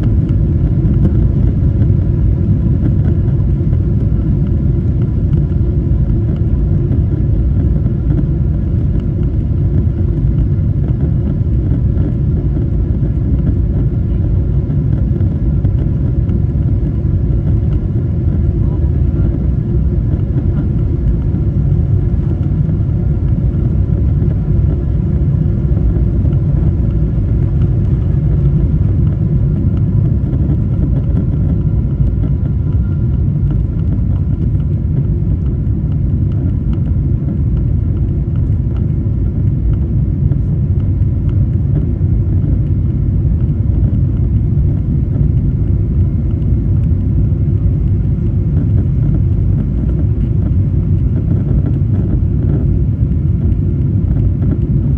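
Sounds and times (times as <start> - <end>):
jet engine and airflow rumble: 0.0 - 54.9
faint whining tones: 11.8 - 40.8.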